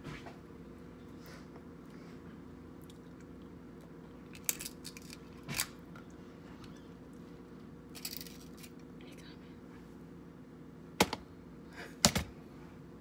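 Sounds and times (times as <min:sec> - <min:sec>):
low steady hum: 0:00.0 - 0:13.0
crab shells cracking and snapping: 0:04.3 - 0:05.8.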